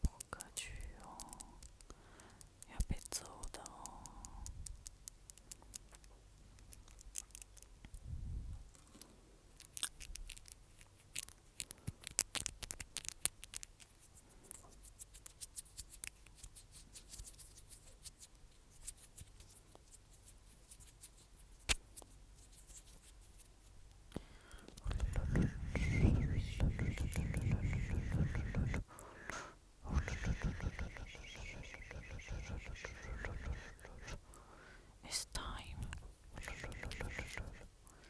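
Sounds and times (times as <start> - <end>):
crisp clicks and crackles: 0.0 - 8.0, 8.7 - 25.5.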